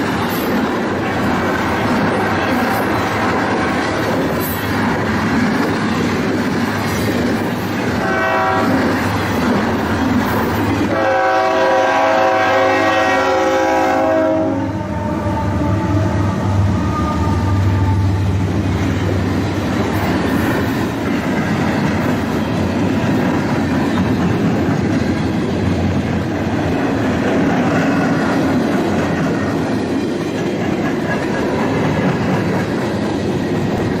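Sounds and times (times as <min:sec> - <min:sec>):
freight train cars rumbling: 0:00.0 - 0:34.0
train horn: 0:07.9 - 0:09.0, 0:10.8 - 0:18.6.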